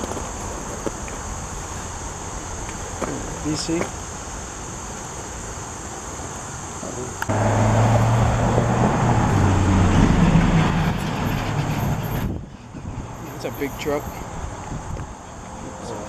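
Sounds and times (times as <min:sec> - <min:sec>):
insects buzzing: 0:00.0 - 0:16.0
truck driving past: 0:07.3 - 0:14.4.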